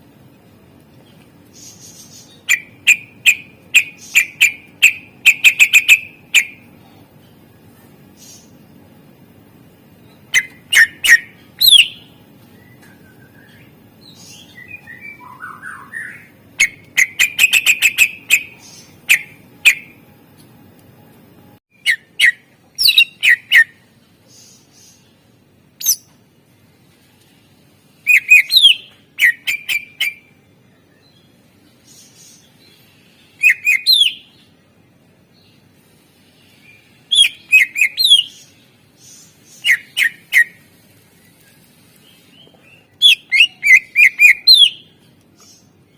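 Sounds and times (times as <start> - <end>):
bird chirps and rattling trill: 1.6 - 6.6, 10.1 - 12.1, 14.2 - 20.0, 21.8 - 23.8, 28.1 - 30.3, 33.4 - 34.2, 43.0 - 44.9.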